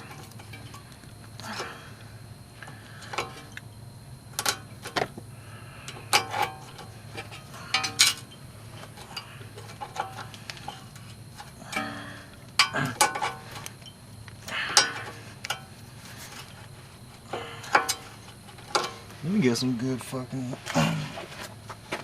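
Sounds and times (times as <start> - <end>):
steady low hum: 0.0 - 22.0
tools clinking against metal: 4.4 - 5.1, 5.8 - 16.6, 17.3 - 19.1.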